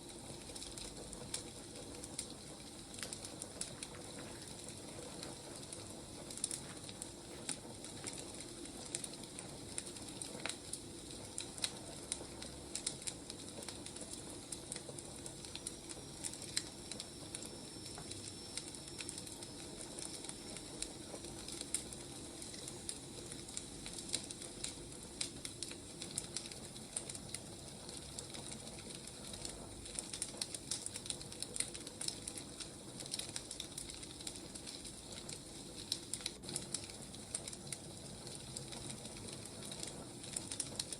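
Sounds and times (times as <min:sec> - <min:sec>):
low hiss of fire: 0:00.0 - 0:40.9
wood fire crackling and popping: 0:00.0 - 0:40.9.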